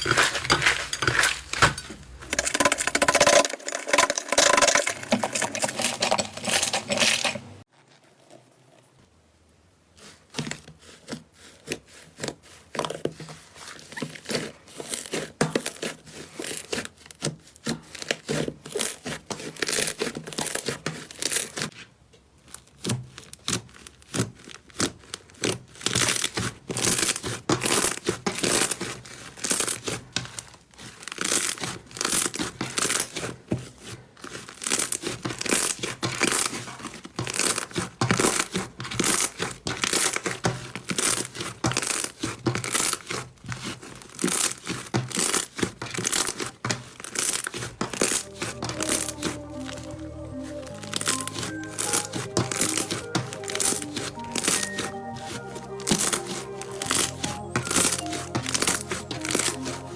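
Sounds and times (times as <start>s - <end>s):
slime crackling and popping: 34.3s - 59.9s.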